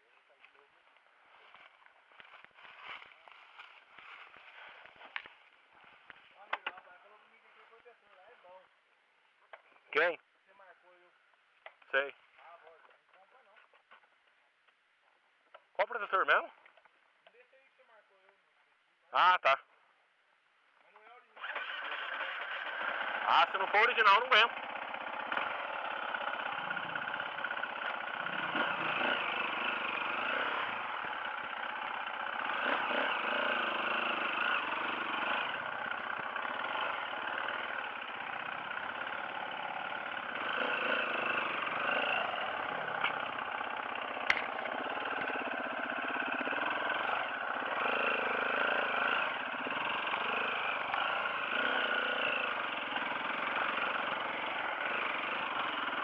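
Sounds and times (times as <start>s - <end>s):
dirt bike engines revving: 21.3s - 56.0s.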